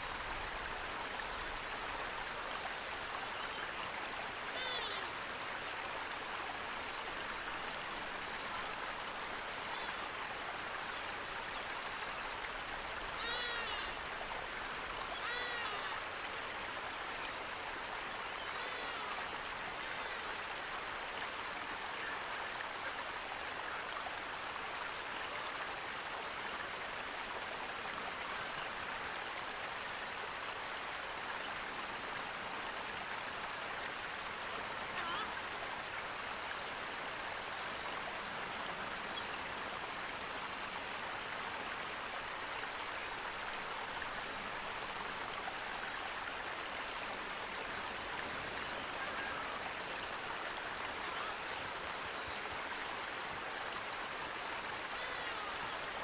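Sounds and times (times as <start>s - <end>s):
flowing water rushing: 0.0s - 56.0s
short bird calls: 4.5s - 5.1s, 13.1s - 14.0s.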